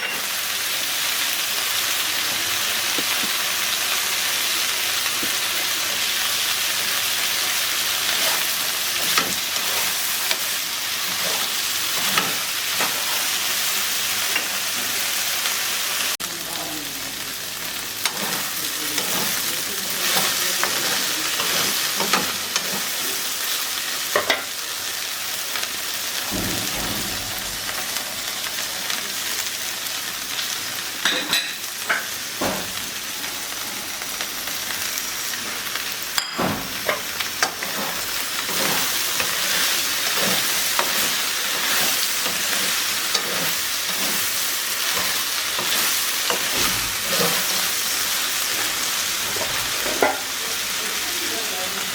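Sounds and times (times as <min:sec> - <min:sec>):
oil sizzling in a pan: 0:00.0 - 0:51.9
spatula scraping a pan: 0:07.9 - 0:13.6, 0:18.0 - 0:23.0, 0:36.8 - 0:50.2.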